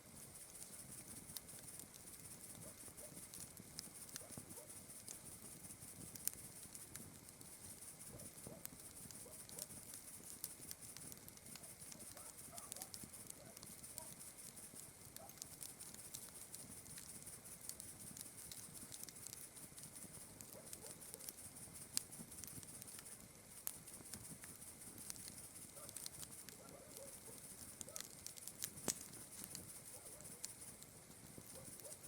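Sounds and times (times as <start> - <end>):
campfire crackling and popping: 0.0 - 32.0
night insects chirring: 0.1 - 32.0.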